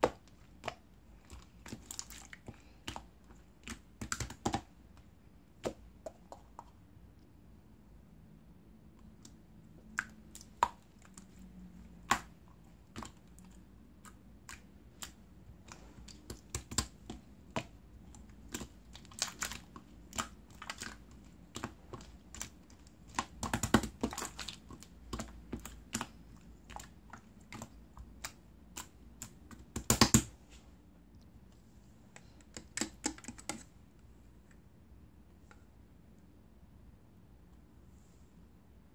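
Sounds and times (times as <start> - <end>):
slime crackling: 12.0 - 30.1
slime clicking and popping: 18.4 - 30.3.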